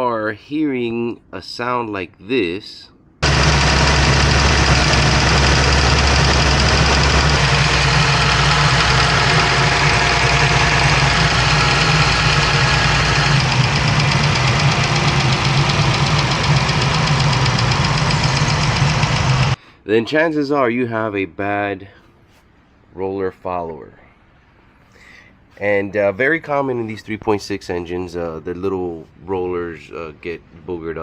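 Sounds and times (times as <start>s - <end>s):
engine idling: 3.2s - 19.6s
engine valve ticking: 3.2s - 19.6s.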